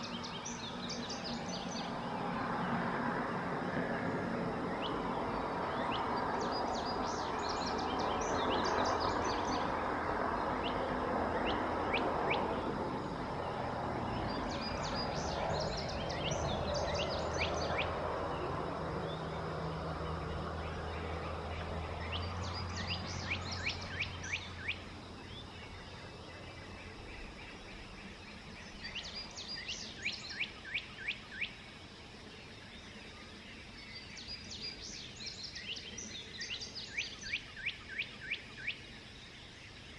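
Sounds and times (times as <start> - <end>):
songbird singing: 0.0 - 39.9
outdoor rumble: 1.0 - 27.2.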